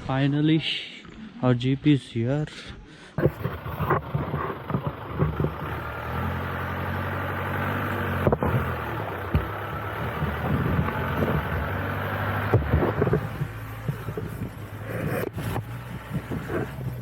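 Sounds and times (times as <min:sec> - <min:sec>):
knocks and thumps: 0:03.2 - 0:05.7, 0:08.2 - 0:11.8, 0:12.4 - 0:17.0
car engine running: 0:03.2 - 0:17.0.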